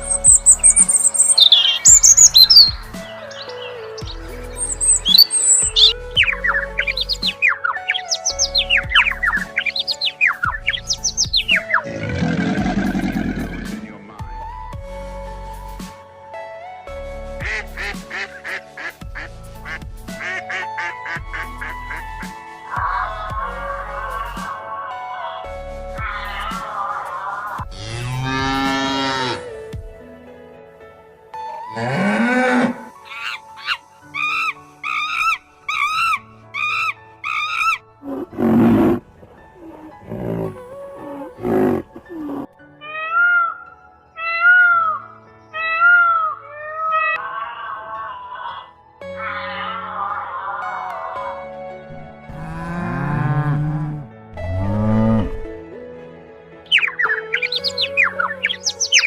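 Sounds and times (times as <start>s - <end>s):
background music with steady beat: 0.0s - 40.6s
lion roaring: 11.8s - 13.8s, 38.0s - 42.5s, 52.3s - 55.5s.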